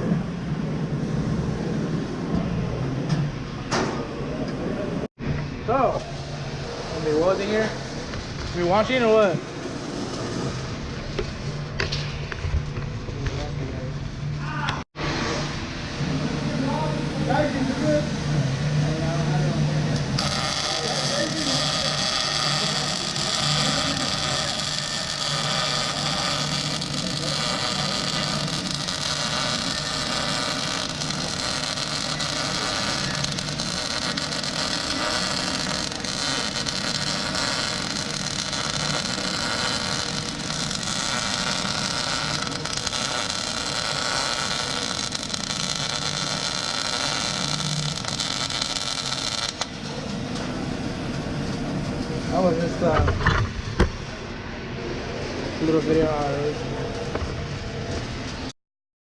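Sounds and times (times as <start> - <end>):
welding arc crackling: 7.0 - 10.6, 16.6 - 53.0.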